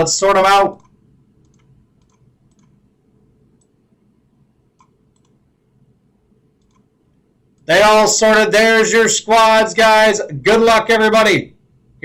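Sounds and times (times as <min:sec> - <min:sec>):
faint computer mouse clicks: 0:00.8 - 0:02.8, 0:04.8 - 0:05.4, 0:06.6 - 0:06.9.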